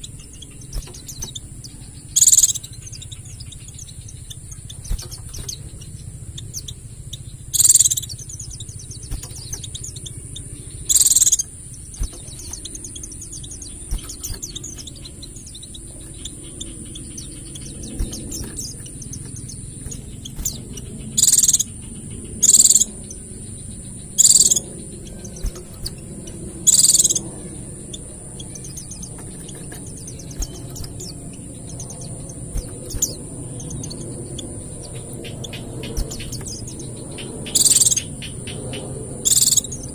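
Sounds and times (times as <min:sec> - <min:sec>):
birds chattering high twitter: 0:00.0 - 0:39.9
short loud bird song bursts: 0:00.0 - 0:39.9.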